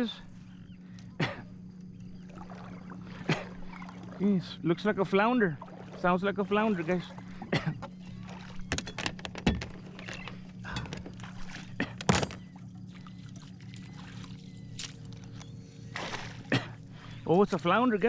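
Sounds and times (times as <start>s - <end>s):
steady low hum: 0.0s - 18.0s
water sloshing and splashing: 0.0s - 18.0s
sharp knocks and clicks: 8.7s - 11.2s.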